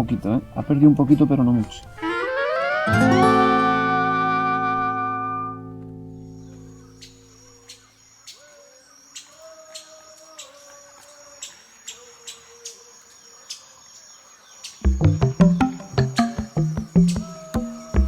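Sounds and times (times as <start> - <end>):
faint low wavering calls: 0.0 - 18.0
insects trilling and chirping: 5.9 - 18.0.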